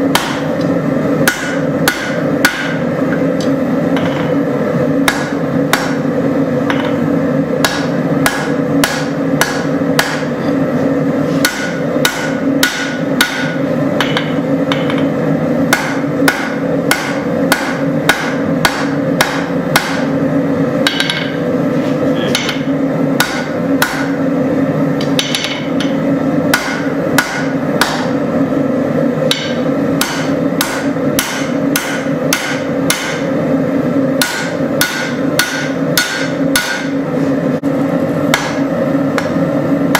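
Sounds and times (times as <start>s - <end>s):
steady drone: 0.0s - 39.9s
forging hammer ringing on anvil: 1.2s - 2.9s, 7.6s - 10.4s, 11.4s - 20.2s, 20.8s - 21.5s, 22.3s - 24.2s, 25.0s - 28.2s, 29.3s - 33.4s, 34.2s - 37.0s.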